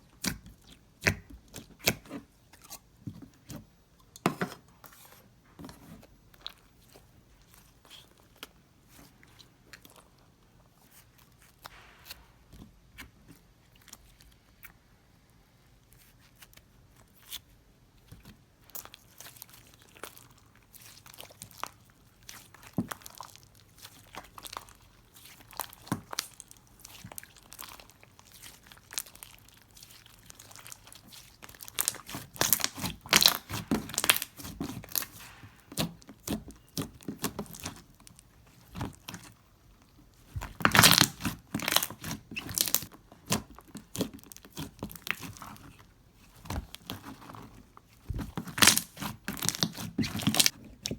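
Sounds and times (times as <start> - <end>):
slime squeezed by hand: 19.4 - 37.9, 40.2 - 47.3, 48.1 - 50.9.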